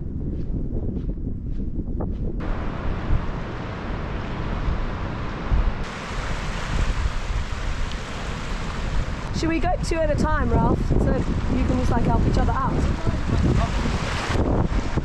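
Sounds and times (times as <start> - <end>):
wind buffeting microphone: 0.0 - 15.0
surf rushing: 2.4 - 9.6, 11.2 - 15.0.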